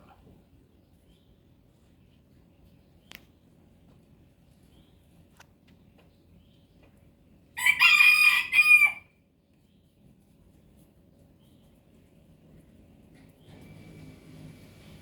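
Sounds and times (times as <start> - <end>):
rooster crowing: 7.6 - 9.1.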